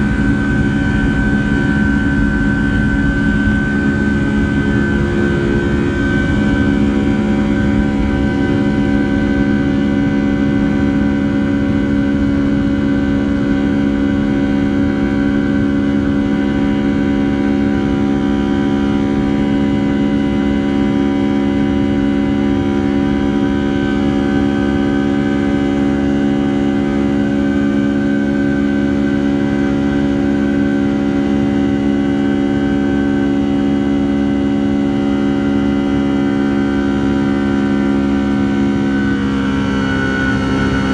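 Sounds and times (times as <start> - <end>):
jet engines droning in cabin: 0.0 - 40.9.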